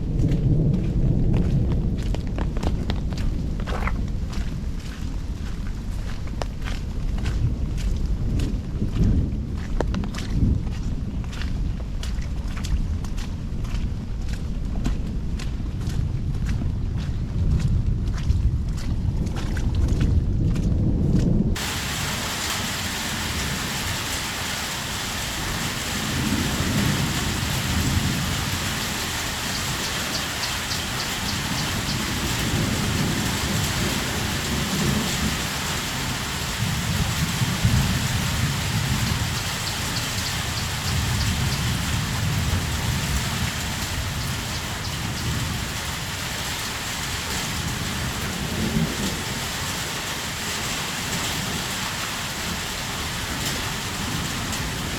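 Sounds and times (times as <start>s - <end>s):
low rumble: 0.0s - 24.0s
heavy rain falling: 21.5s - 54.9s.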